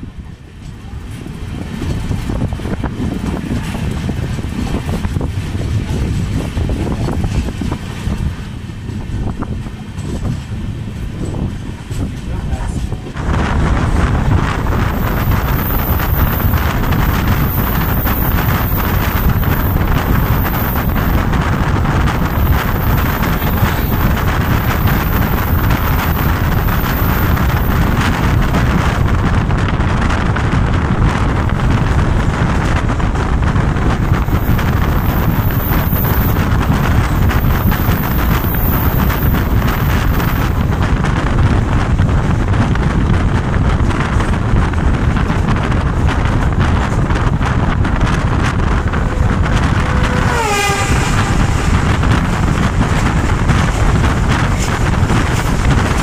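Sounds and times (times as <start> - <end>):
train rumbling on rails: 0.0 - 56.0
wind buffeting microphone: 0.0 - 56.0.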